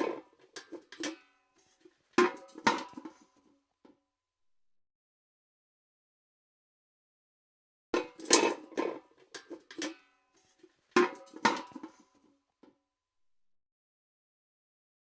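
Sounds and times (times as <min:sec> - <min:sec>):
steel bucket clanking: 0:00.0 - 0:03.3, 0:08.0 - 0:12.1.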